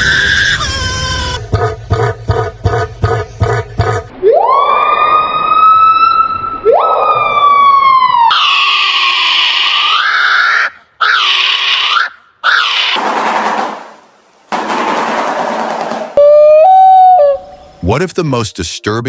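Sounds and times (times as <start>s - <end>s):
harsh rasping bird screeches: 8.4s - 13.0s.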